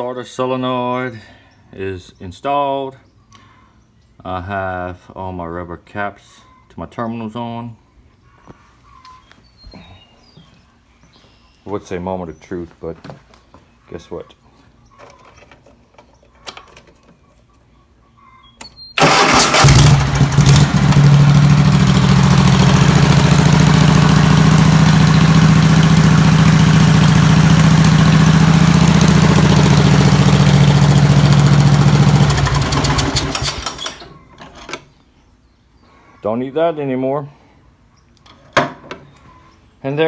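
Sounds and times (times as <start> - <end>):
engine spinning down: 19.0 - 34.1
mower engine cranking and running: 19.0 - 34.8.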